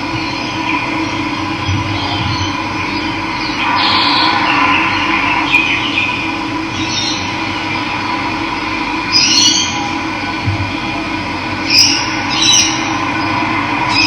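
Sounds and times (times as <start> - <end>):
birds chirping: 0.2 - 7.8, 11.6 - 14.0.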